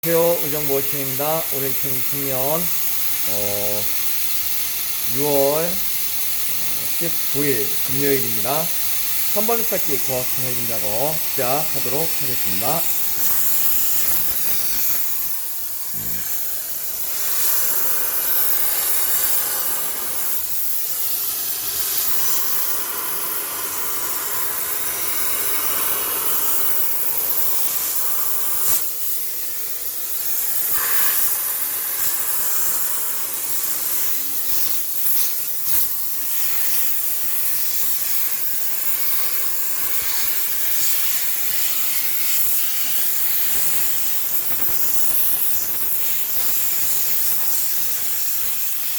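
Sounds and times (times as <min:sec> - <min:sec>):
steam cleaner hissing: 0:00.0 - 0:48.9.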